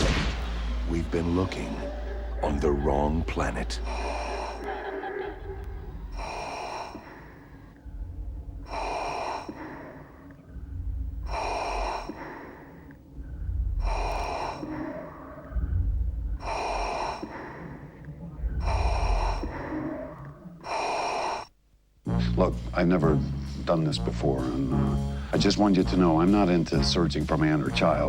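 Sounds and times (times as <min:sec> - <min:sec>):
deep rumble: 0:00.0 - 0:20.3
breathy whooshing pulses: 0:00.0 - 0:28.0.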